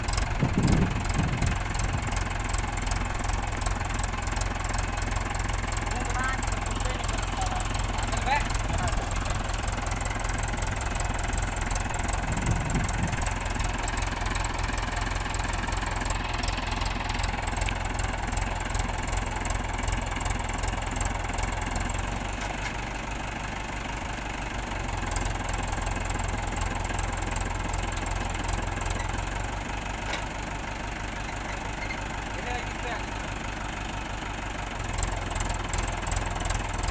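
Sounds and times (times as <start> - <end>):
tractor diesel engine knocking: 0.0 - 36.9.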